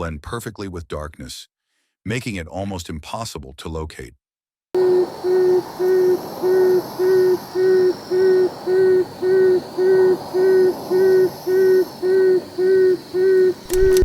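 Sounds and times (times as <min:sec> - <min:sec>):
frogmouth low oom calls: 0:04.8 - 0:14.0.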